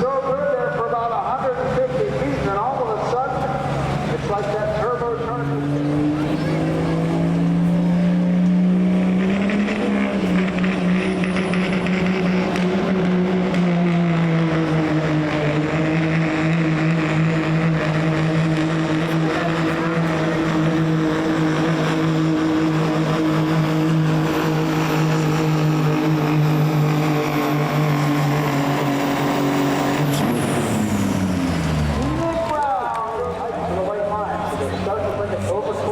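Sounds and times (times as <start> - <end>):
diesel engine running under load: 0.0 - 35.9.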